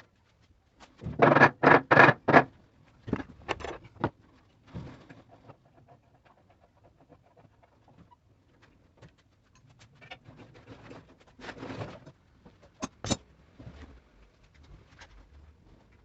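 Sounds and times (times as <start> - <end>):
rustling scrape: 8.6 - 12.2.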